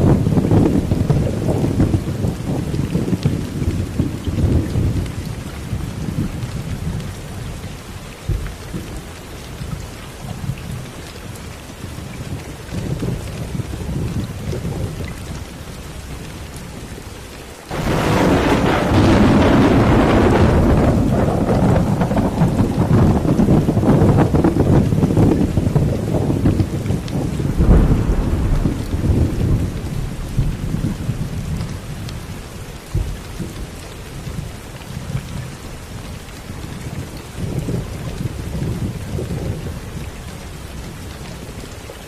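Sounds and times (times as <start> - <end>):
steady rain: 0.0 - 42.0
heavy rain rushing hiss: 17.2 - 26.3, 26.9 - 34.0
rolling thunder: 17.7 - 33.7.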